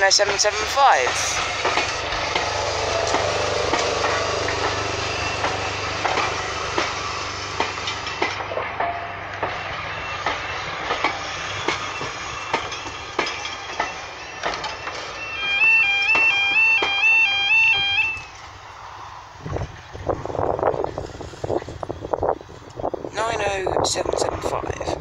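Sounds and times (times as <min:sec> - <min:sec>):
wheels clicking over rail joints: 0:00.0 - 0:18.6
train carriages rumbling past: 0:00.0 - 0:25.0.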